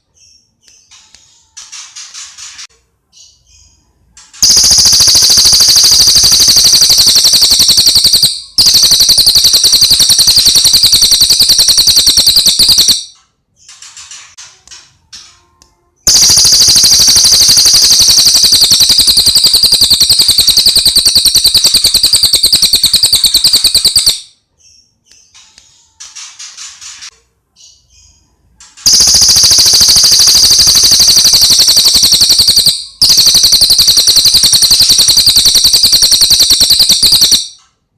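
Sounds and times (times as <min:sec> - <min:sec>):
songbird rattling trills: 0:04.4 - 0:13.0, 0:16.1 - 0:24.2, 0:28.9 - 0:37.4.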